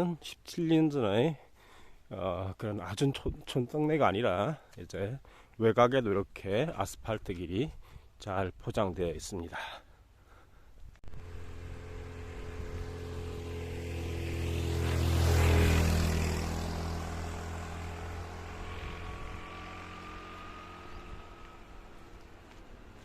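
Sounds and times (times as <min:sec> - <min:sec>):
vehicle driving past: 0:11.1 - 0:23.0.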